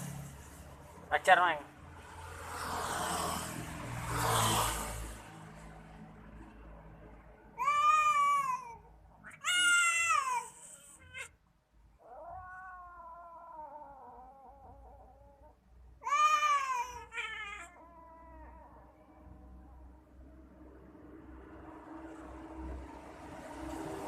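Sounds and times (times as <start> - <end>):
cats yowling in a fight: 7.6 - 11.4, 12.0 - 19.0.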